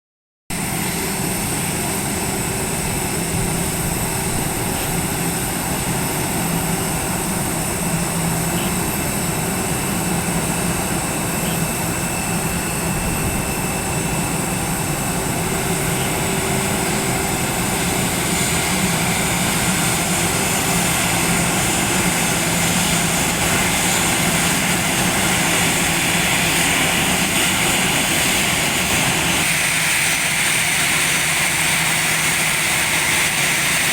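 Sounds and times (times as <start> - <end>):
airliner engines droning: 0.5 - 33.9
high engine whine: 0.5 - 33.9.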